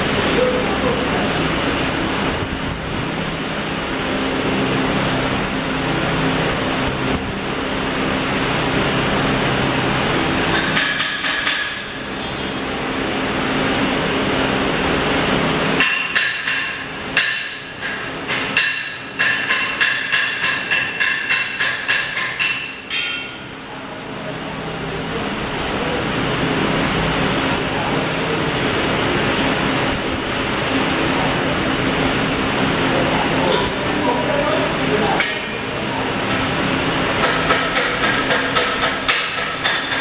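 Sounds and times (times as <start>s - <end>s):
arc welding hiss and hum: 0.0s - 40.0s
hammer striking metal: 10.5s - 12.6s, 15.8s - 23.5s, 35.2s - 35.7s, 37.2s - 40.0s.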